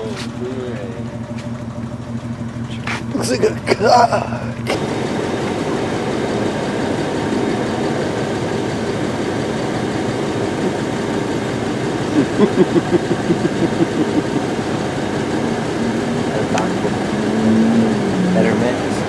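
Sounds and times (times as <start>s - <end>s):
engine running: 0.0s - 19.0s
quick even pulses: 2.6s - 19.0s.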